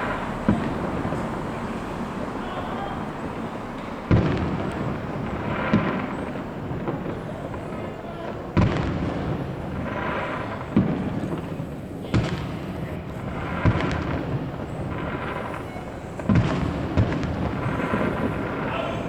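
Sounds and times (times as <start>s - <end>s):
firework shells bursting: 0.0s - 19.0s
fireworks crackling: 0.0s - 19.0s.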